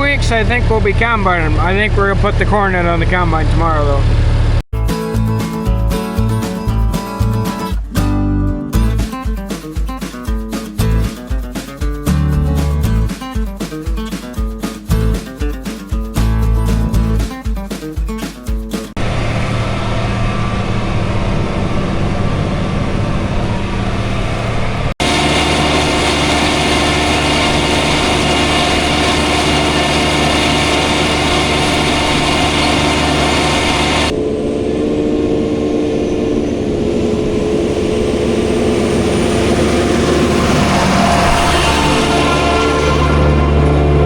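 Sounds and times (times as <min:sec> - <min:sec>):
engine running: 0:00.0 - 0:09.1, 0:18.9 - 0:44.0.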